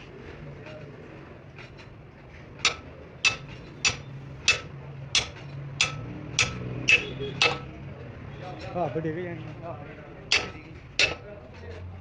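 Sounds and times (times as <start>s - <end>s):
hammer striking steel: 2.6s - 7.8s, 10.3s - 11.3s.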